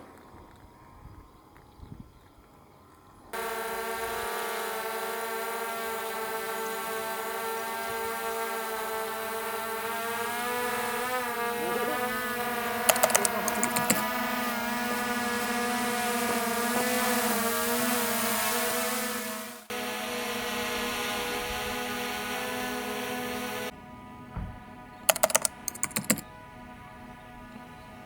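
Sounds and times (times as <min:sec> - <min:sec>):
drone propellers buzzing: 0:03.4 - 0:23.7, 0:25.1 - 0:26.3
sharp clicks: 0:12.0 - 0:14.4, 0:25.1 - 0:26.2.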